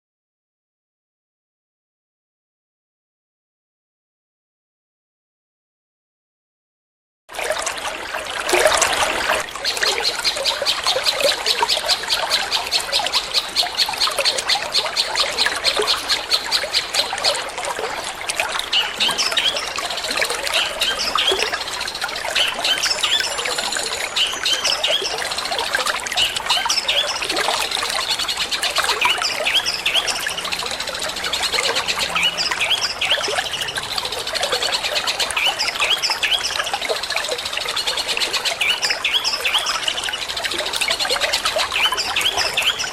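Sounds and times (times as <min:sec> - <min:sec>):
water trickling: 0:07.3 - 0:42.9
bird singing: 0:09.3 - 0:42.9.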